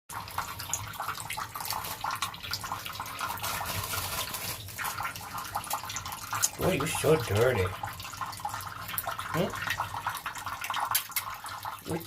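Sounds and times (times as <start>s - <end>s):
water spraying and splashing: 1.4s - 7.6s.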